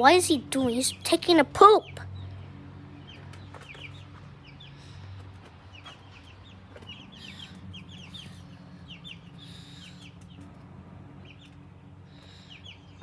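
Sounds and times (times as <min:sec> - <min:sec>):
chickens clucking: 0:03.1 - 0:10.6.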